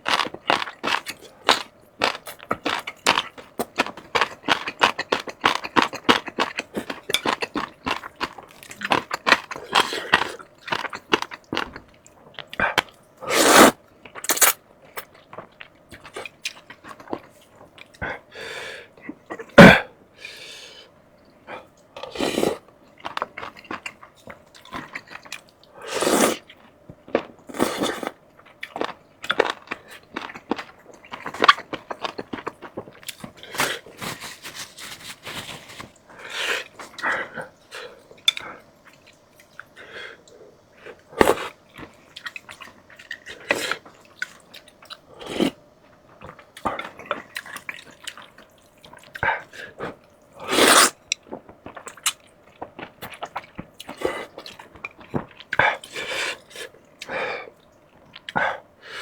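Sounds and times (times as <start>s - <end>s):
crunching bites and chewing: 14.1s - 17.2s.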